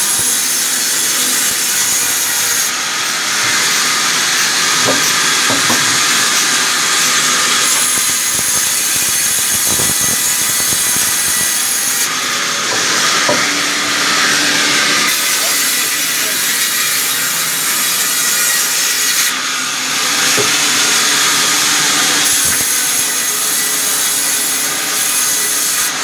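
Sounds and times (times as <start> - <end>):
saw cutting timber: 0.0 - 26.0
faint knocks: 4.8 - 6.3.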